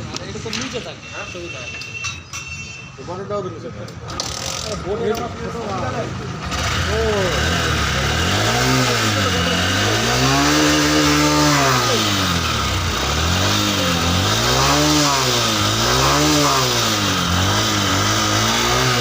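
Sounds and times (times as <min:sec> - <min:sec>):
motorcycle engine revving: 0:05.6 - 0:19.0.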